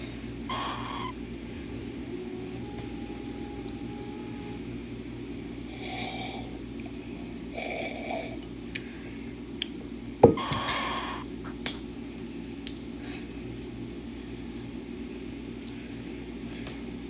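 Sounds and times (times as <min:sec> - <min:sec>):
steady low hum: 0:00.0 - 0:17.0
cockatiel harsh calls: 0:00.5 - 0:01.2, 0:10.4 - 0:11.3.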